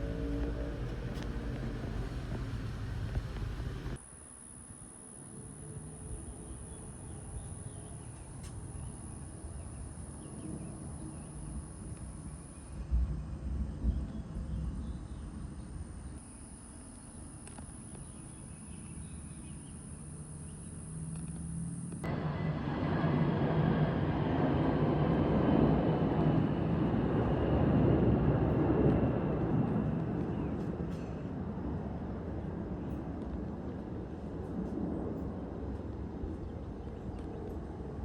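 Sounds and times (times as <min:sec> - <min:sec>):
jet engine roar: 0:00.0 - 0:04.0, 0:22.0 - 0:38.0
faint whine falling in pitch: 0:00.0 - 0:38.0.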